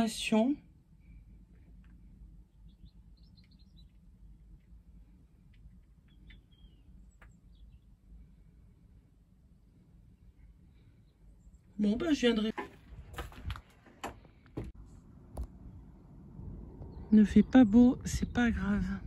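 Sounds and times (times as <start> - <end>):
faint bird chirps: 2.4 - 4.0, 6.0 - 8.5.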